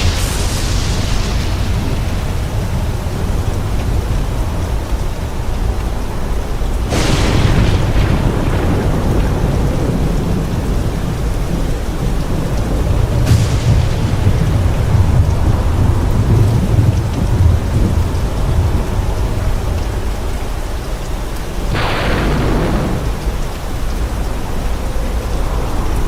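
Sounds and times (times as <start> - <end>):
steady rain: 0.0 - 26.0
thunder rumbling: 0.0 - 26.0
sudden sharp burst: 6.9 - 9.5, 21.7 - 23.8.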